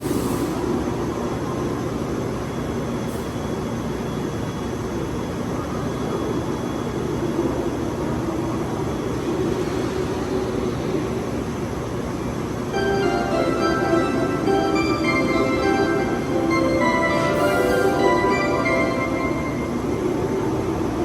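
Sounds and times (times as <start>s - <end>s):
electric train humming: 0.0s - 21.0s.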